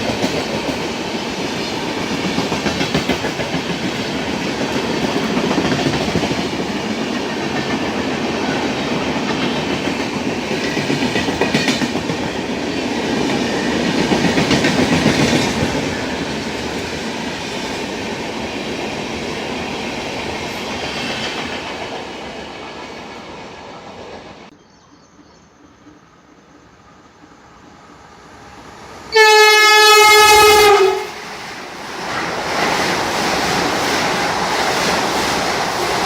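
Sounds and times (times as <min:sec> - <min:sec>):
train wheels clattering over rails: 0:00.0 - 0:24.5, 0:30.0 - 0:36.0.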